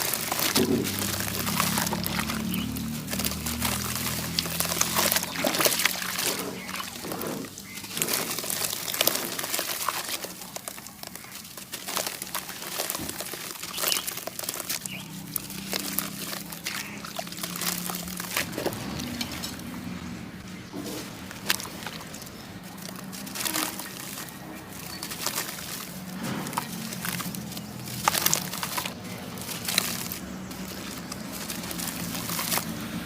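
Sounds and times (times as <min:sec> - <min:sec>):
cement crumbling in water: 0:00.0 - 0:20.0
wet sloshing: 0:00.0 - 0:33.0.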